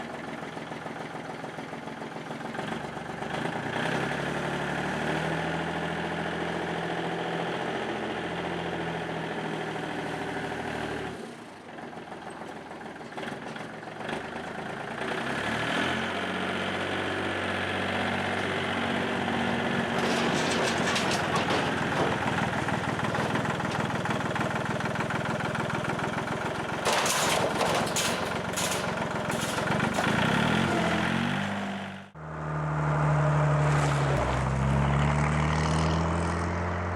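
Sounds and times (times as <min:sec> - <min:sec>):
car engine idling: 0:20.0 - 0:31.2.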